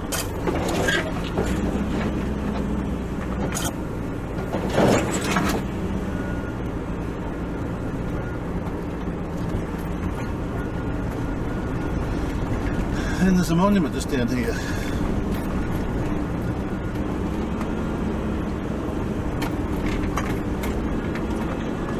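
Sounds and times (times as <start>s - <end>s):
knocks and rattles from bumps: 0.0s - 5.7s, 19.3s - 21.9s
vehicle engine hum: 0.0s - 21.9s.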